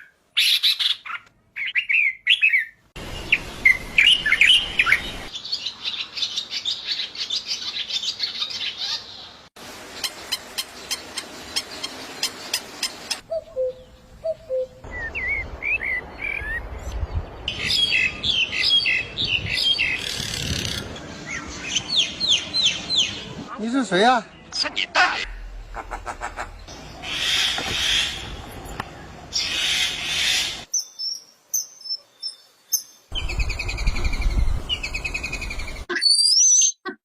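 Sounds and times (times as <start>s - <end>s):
small birds chirping: 0.0s - 37.0s
sharp clicking bird calls: 10.0s - 13.7s.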